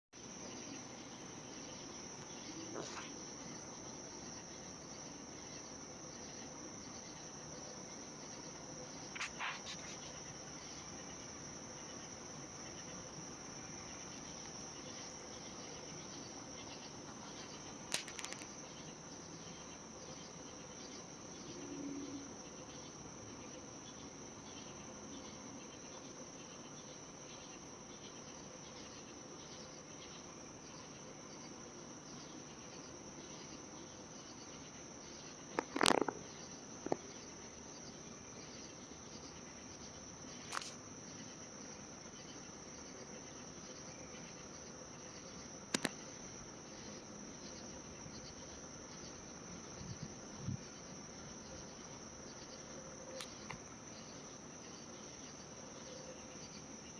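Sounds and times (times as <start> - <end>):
crickets trilling: 0.2 - 56.9
sharp clicks: 45.7 - 46.0.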